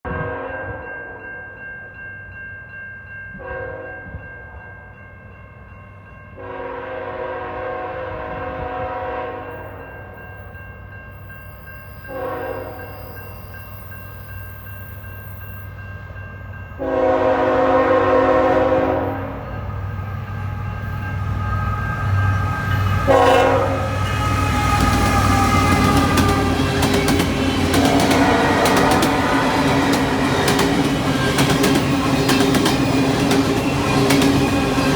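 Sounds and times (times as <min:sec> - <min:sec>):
locomotive horn blasts: 0:06.4 - 0:09.8, 0:12.1 - 0:13.0, 0:16.8 - 0:19.4, 0:22.1 - 0:26.7, 0:27.3 - 0:30.8
locomotive rumble: 0:17.1 - 0:34.9.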